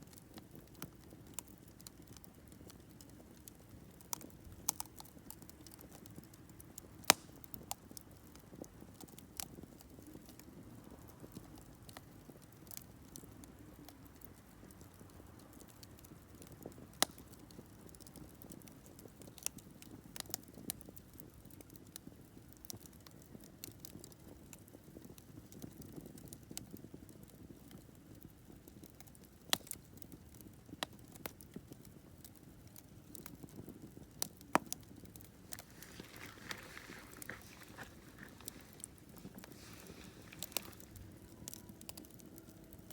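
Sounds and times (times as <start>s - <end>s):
campfire crackling and popping: 0.0s - 42.9s
low rush of flame: 34.5s - 42.9s.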